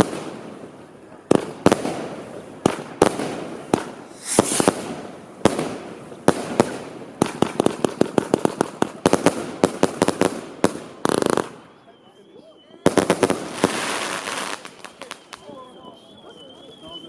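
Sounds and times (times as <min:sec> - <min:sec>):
fireworks hissing crackle: 0:00.3 - 0:10.2, 0:12.9 - 0:16.8
fireworks bangs: 0:01.2 - 0:11.6, 0:12.9 - 0:15.6.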